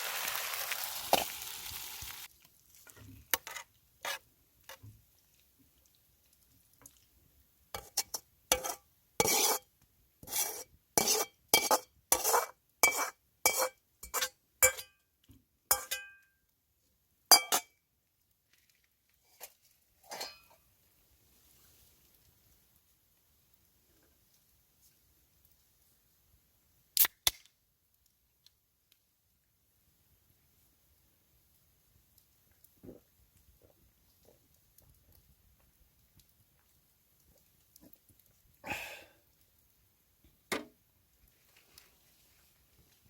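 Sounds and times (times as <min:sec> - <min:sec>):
utensil clinking against a wok: 0:07.8 - 0:15.0, 0:15.7 - 0:16.3, 0:17.3 - 0:17.8, 0:20.0 - 0:20.6.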